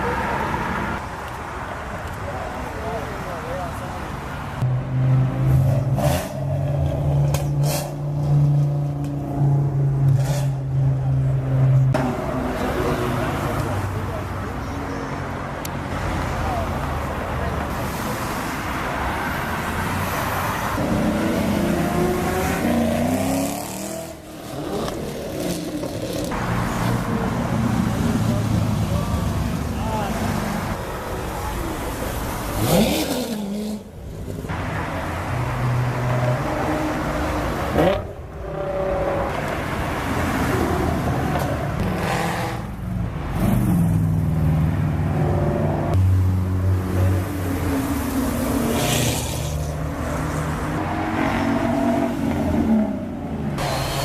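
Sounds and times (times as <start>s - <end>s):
car engines revving: 0.0s - 54.0s
car engine revving: 32.5s - 33.9s.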